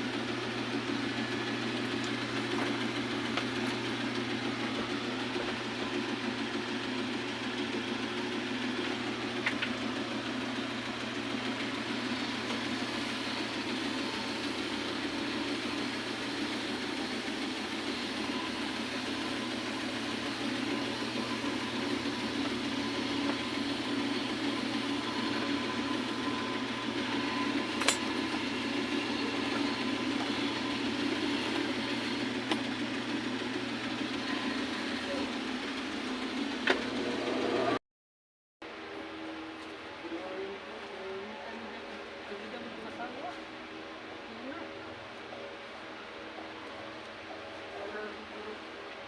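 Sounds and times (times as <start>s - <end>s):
steady motor hum: 0.0s - 37.8s, 38.7s - 49.0s
sharp click: 27.8s - 28.1s.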